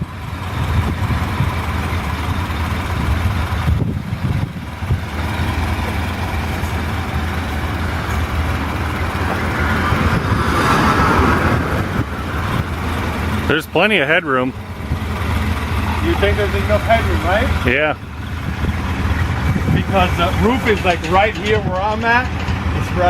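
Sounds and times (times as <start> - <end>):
old vehicle engine rumbling: 0.0 - 23.0.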